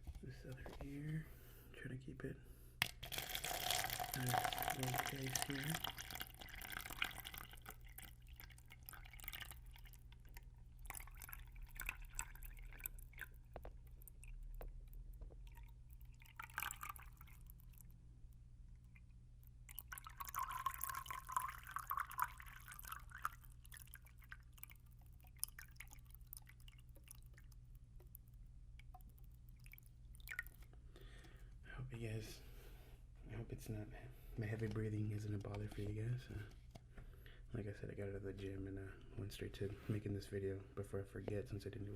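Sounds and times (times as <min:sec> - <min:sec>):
water poured into a cup: 0:02.8 - 0:18.0, 0:18.9 - 0:31.3
water dripping and trickling: 0:02.8 - 0:31.3.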